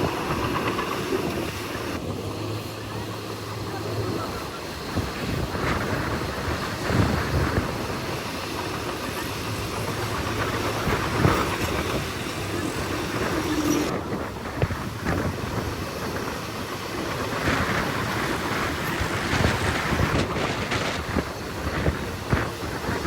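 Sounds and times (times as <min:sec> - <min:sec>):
earthmoving machine running: 0:00.0 - 0:23.0.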